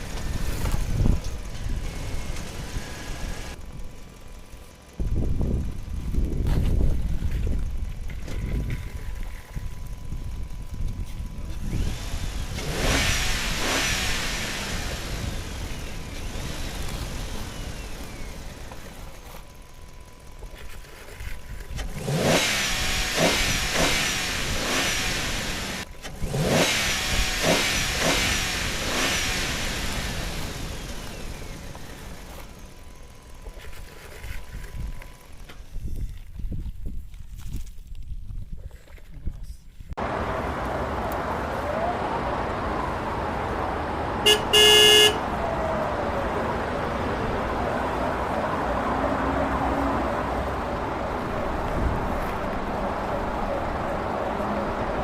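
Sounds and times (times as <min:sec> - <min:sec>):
car engine revving: 0:11.5 - 0:19.1, 0:21.8 - 0:33.0, 0:40.0 - 0:55.0.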